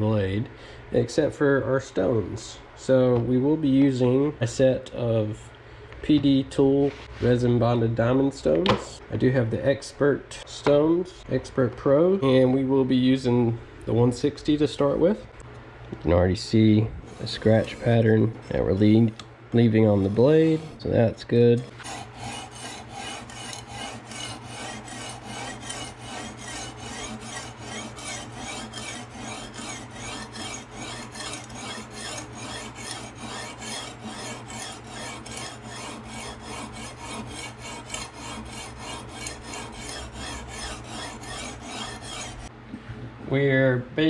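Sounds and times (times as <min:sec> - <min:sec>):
sharpening stone rasping on knife: 0:21.8 - 0:42.5.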